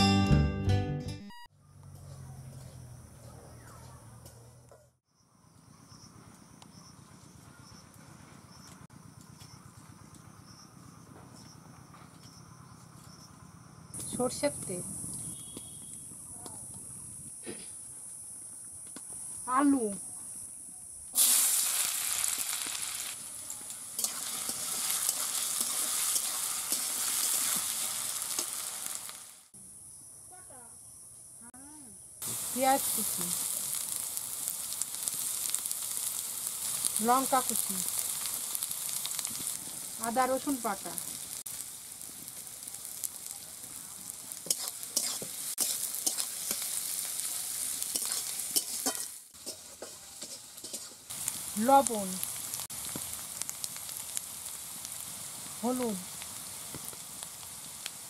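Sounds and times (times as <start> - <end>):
potatoes sizzling in hot oil: 21.2 - 29.5, 32.2 - 58.0
metal spatula scraping a pan: 44.5 - 46.7, 47.8 - 51.1.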